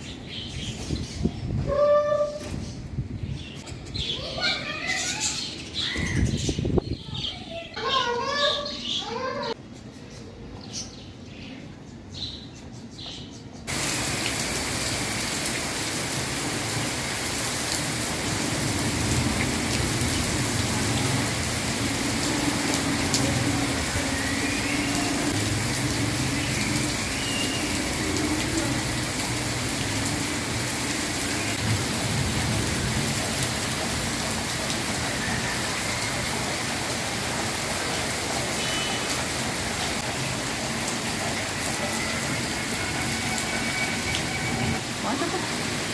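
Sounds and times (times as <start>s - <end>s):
heavy rain hissing: 13.7s - 45.9s.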